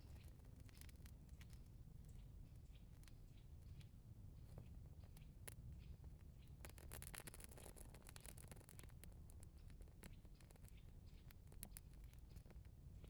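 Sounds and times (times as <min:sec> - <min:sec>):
small dry clicks: 0:02.8 - 0:12.8.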